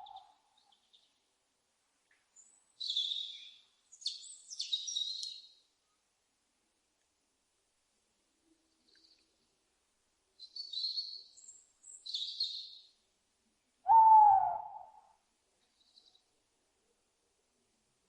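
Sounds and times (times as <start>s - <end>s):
owl call: 0.0s - 0.4s, 13.9s - 15.2s
high chirpy bird calls: 2.8s - 5.4s.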